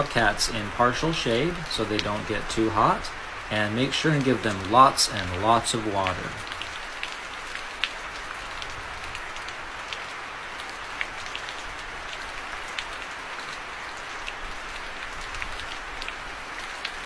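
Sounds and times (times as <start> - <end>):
falling water pattering: 0.0 - 17.0.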